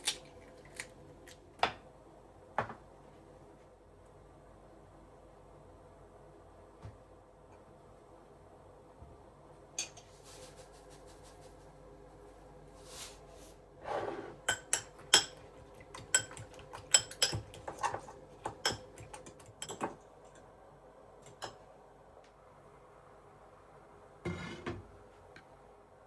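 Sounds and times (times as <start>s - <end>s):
dish scraping: 13.8s - 14.5s, 24.3s - 24.8s
dishes and cutlery clinking: 16.0s - 20.0s.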